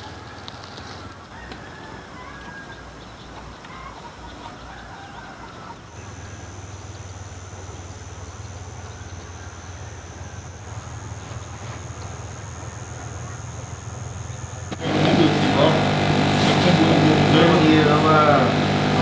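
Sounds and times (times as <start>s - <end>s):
chickens clucking faintly: 0.0s - 7.0s
mechanical hum with high whine: 0.0s - 19.0s.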